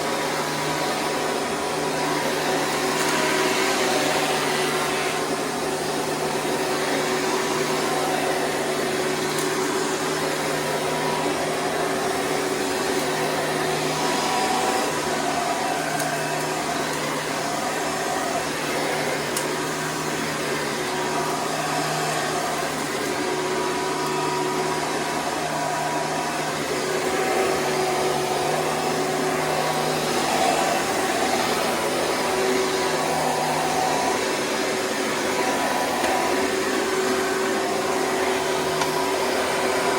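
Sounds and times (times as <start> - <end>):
vacuum cleaner motor hum: 0.0 - 39.9.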